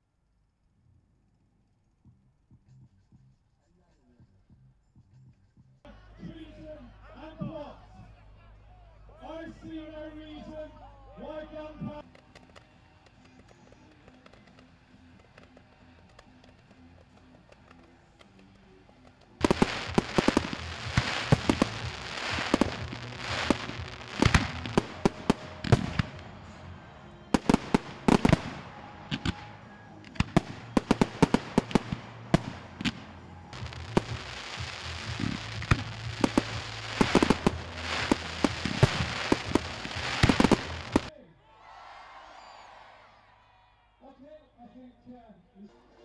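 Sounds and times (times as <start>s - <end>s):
fireworks bangs and crackling: 11.9s - 41.1s.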